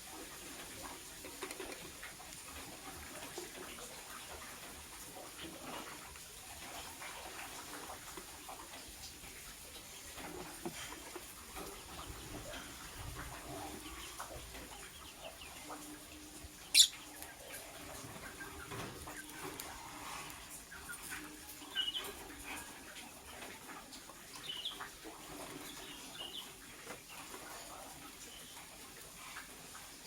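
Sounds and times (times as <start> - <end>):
bird chirping: 16.6 - 17.2, 21.6 - 22.2.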